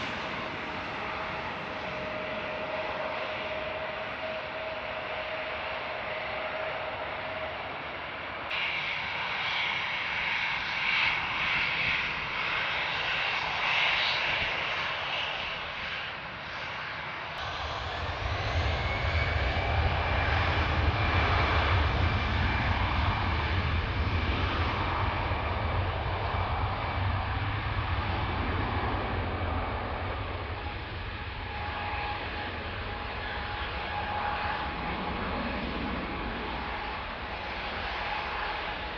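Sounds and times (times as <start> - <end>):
jet engines whining: 0.0 - 38.9
deep engine rumble: 17.4 - 37.5.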